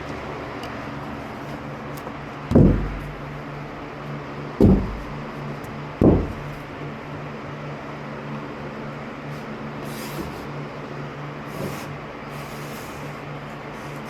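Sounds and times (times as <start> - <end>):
steady low hum: 0.0 - 14.0
loud low thumps: 2.5 - 3.8, 4.6 - 6.9.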